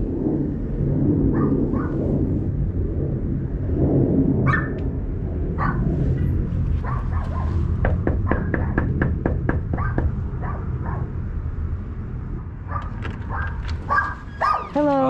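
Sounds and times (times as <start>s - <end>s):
steady low rumble: 0.0s - 15.0s
sharp animal calls: 12.8s - 14.8s.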